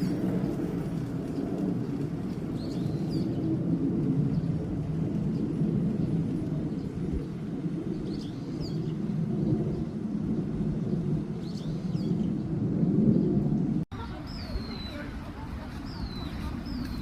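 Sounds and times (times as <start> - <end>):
low rumble: 0.0 - 13.9.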